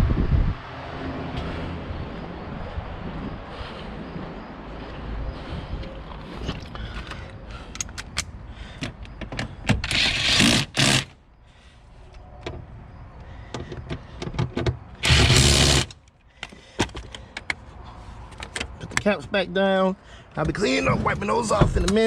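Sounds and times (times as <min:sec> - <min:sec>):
loud wrench bursts: 0:09.7 - 0:11.2, 0:15.0 - 0:16.0.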